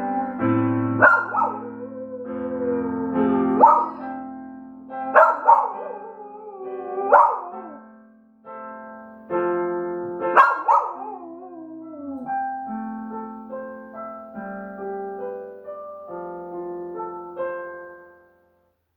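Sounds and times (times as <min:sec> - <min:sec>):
dog howling: 0:00.0 - 0:04.2, 0:05.2 - 0:07.8, 0:10.4 - 0:12.6
piano chords: 0:00.0 - 0:18.5.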